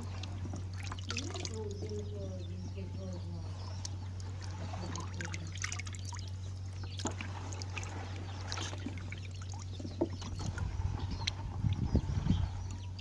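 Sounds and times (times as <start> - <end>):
water pouring and trickling: 0.0 - 2.1, 4.2 - 11.9
small splashes: 0.0 - 2.2, 3.5 - 11.9
low hum: 0.0 - 13.0.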